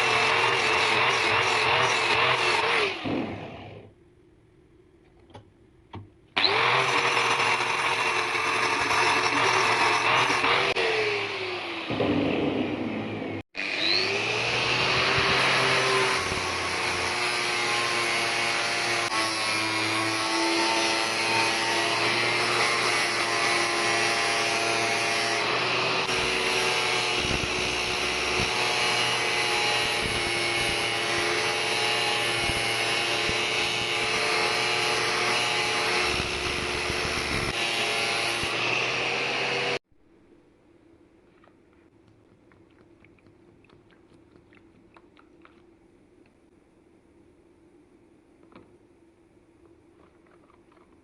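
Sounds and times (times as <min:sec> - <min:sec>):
power tool grinding metal: 0:00.0 - 0:03.8, 0:06.4 - 0:39.8.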